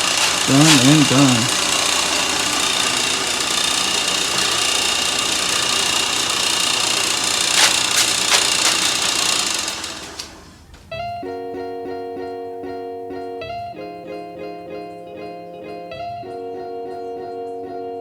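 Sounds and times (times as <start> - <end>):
power tool running with whine: 0.0 - 0.5, 1.5 - 10.4.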